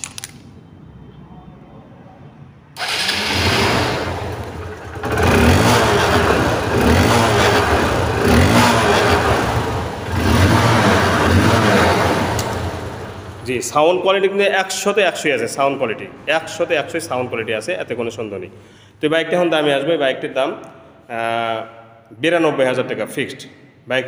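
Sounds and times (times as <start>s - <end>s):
motorcycle engine starting and revving: 2.8s - 13.5s.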